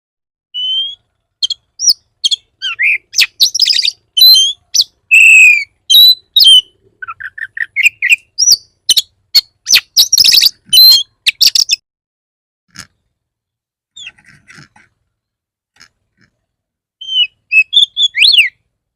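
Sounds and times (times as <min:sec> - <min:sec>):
bird singing sharp whistles: 0:00.6 - 0:11.8, 0:17.0 - 0:18.6.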